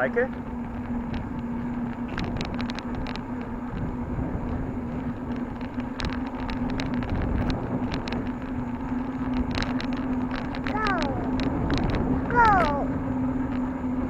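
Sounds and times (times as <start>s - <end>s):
bicycle clicks and rattles: 0.0s - 14.0s
bicycle riding hum: 0.0s - 14.0s.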